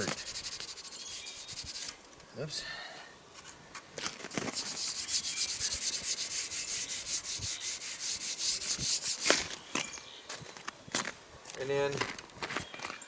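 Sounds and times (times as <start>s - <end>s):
scrub pad scuffing painted metal rail: 4.3s - 9.5s.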